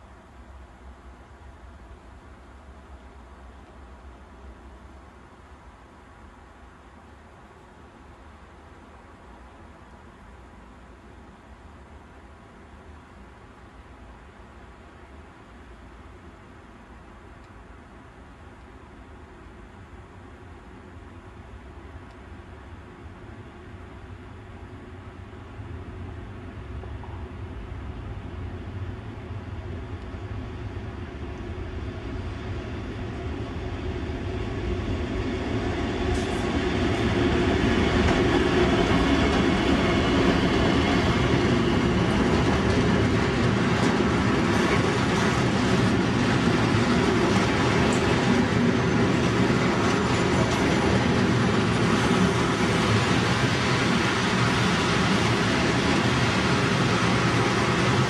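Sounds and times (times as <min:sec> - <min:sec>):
diesel locomotive engine running: 0:28.2 - 0:58.0.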